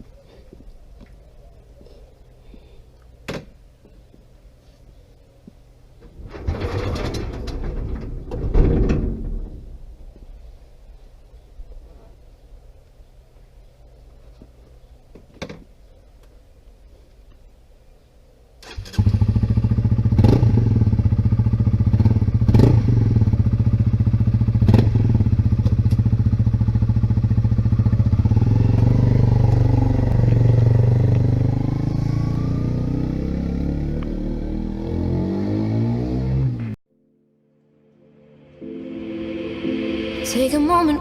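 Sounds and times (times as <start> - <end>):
motorcycle engine running: 19.0 - 34.0.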